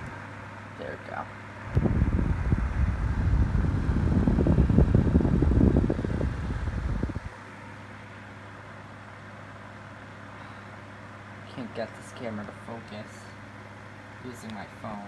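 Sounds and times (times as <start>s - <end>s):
desk fan humming: 0.0s - 15.0s
loud rough rumble: 1.7s - 7.3s.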